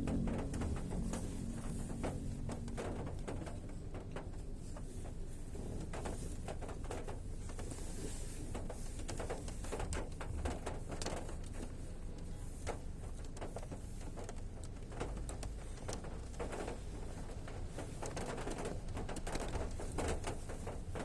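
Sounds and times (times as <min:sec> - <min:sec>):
rain falling: 0:00.0 - 0:07.3
raindrops pattering: 0:00.0 - 0:21.0.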